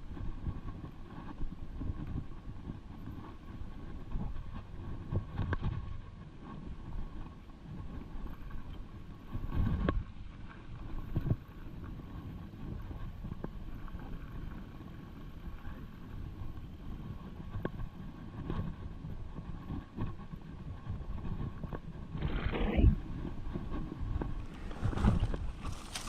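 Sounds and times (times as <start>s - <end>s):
wind on microphone: 0.0s - 26.0s
bike tyres rumbling over rock: 20.6s - 26.0s
bike knocks and rattles: 24.2s - 26.0s.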